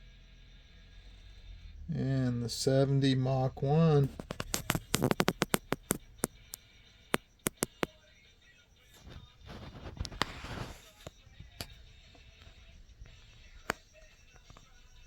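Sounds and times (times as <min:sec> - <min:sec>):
handling rustle: 0:04.0 - 0:06.2, 0:09.0 - 0:11.7
sharp handling clicks: 0:04.0 - 0:06.6, 0:07.4 - 0:07.9.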